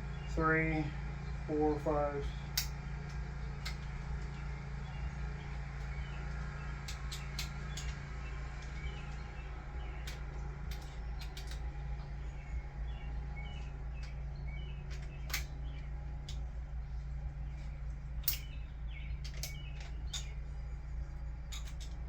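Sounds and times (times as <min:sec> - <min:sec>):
steady low hum: 0:00.0 - 0:22.0
hand tools clinking on bolts: 0:06.8 - 0:08.0, 0:10.0 - 0:11.7, 0:18.2 - 0:18.6, 0:19.2 - 0:20.4, 0:21.5 - 0:22.0.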